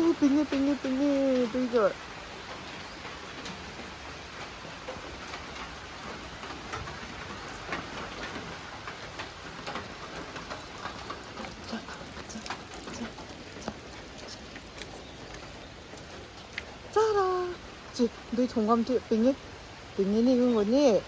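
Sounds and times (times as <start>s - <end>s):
raindrops ticking on surfaces: 0.0s - 21.0s
steady rain falling: 0.0s - 21.0s.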